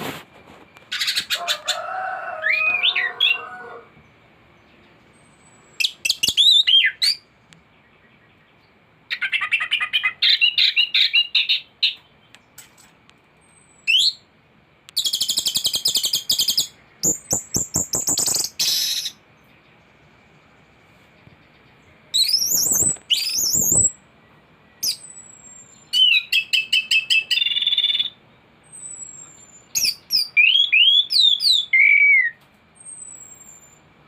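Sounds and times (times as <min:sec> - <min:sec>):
thrush singing whistled song: 0:04.8 - 0:12.4, 0:13.4 - 0:14.3, 0:14.9 - 0:20.0, 0:21.6 - 0:33.9
fast buzzy bird trill: 0:15.0 - 0:19.2, 0:22.2 - 0:24.0.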